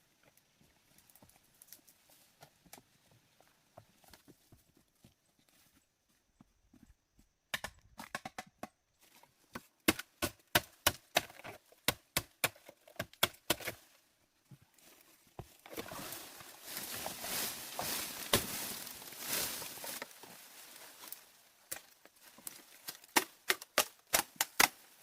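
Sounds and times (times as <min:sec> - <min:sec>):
rustling: 0:14.6 - 0:23.1.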